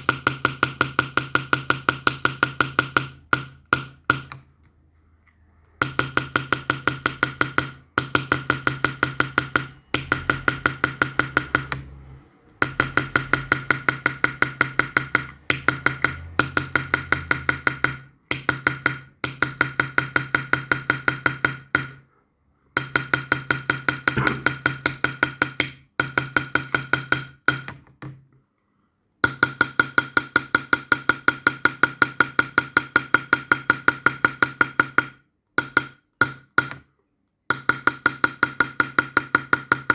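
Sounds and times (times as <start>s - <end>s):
hammer tapping metal punch: 5.8s - 11.9s, 12.5s - 22.0s, 22.8s - 27.8s.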